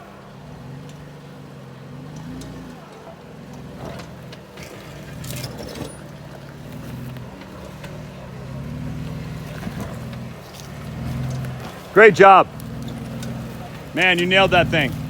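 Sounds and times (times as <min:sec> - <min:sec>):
engine crawling over rock: 0:00.0 - 0:15.0.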